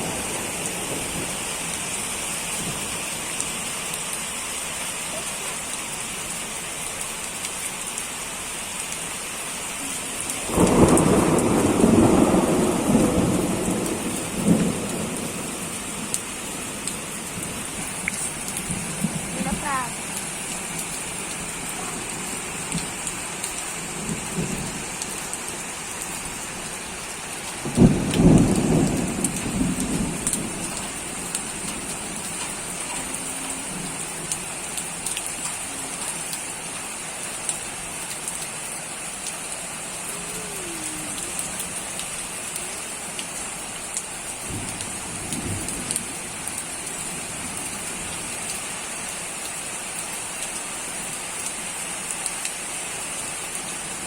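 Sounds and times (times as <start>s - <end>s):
steady rain: 0.0s - 54.0s
thunder rolling: 10.4s - 19.7s, 27.6s - 32.4s, 44.5s - 46.2s.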